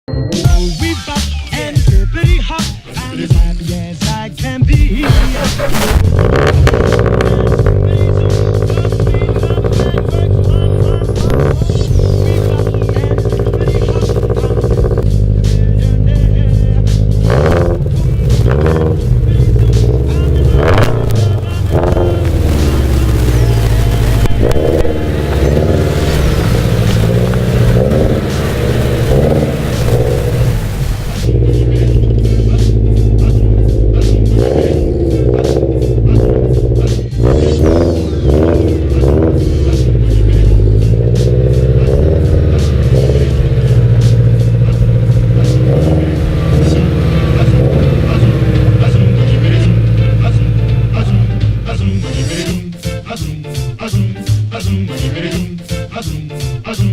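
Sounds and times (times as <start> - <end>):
background music: 0.1 - 56.9
car engine deep exhaust note: 5.0 - 52.5.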